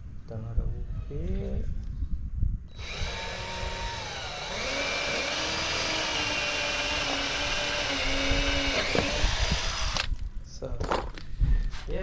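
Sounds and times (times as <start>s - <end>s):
power drill driving fastener into wood: 2.8s - 10.2s.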